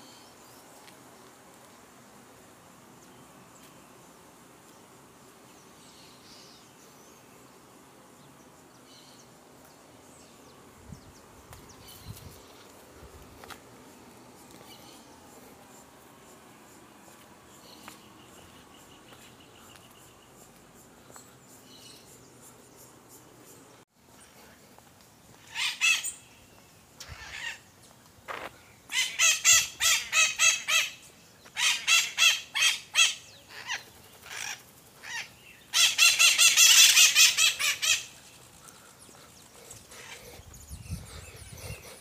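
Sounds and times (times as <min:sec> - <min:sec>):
bird calling harshly: 0:25.4 - 0:26.3, 0:28.9 - 0:31.0, 0:31.6 - 0:38.2.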